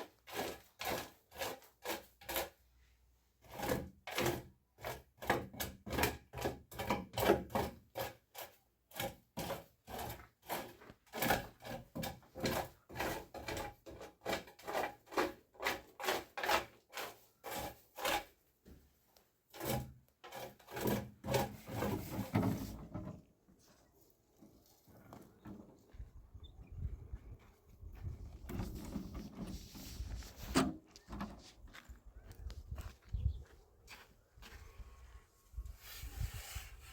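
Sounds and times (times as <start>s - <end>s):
hand tool scraping rough surface: 0.0s - 18.8s, 19.4s - 23.7s, 28.1s - 31.8s, 35.6s - 36.9s.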